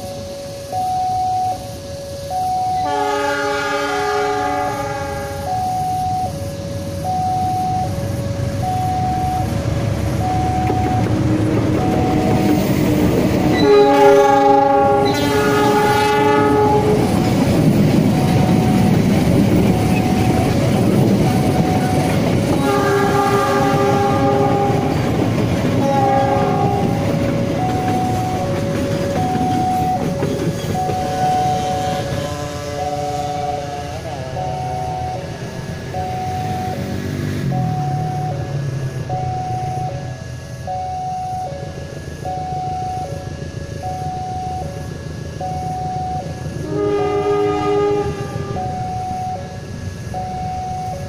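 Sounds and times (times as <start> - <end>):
train horn: 1.5 - 6.9, 11.0 - 17.4, 21.2 - 30.2, 30.9 - 35.2, 46.5 - 49.6
train wheels rumbling and clattering: 1.6 - 40.7
two-note warning chime: 5.1 - 6.4, 18.1 - 19.0, 34.3 - 36.8, 37.5 - 46.4, 48.5 - 49.6.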